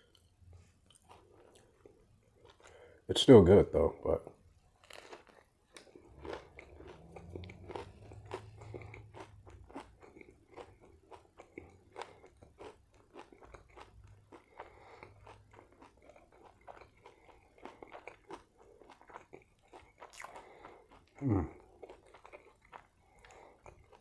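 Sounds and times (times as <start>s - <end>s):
chewing with wet crunches: 0.0s - 3.0s, 4.7s - 24.0s
low hum: 5.9s - 10.1s.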